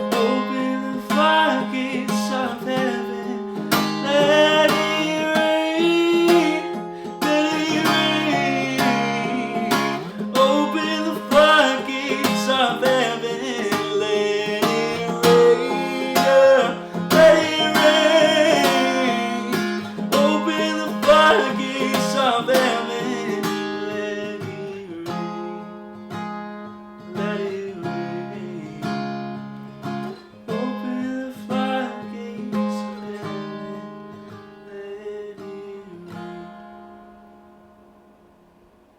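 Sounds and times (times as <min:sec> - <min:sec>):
person singing wordless notes: 0:00.0 - 0:25.6
acoustic guitar strumming chords: 0:00.0 - 0:38.9.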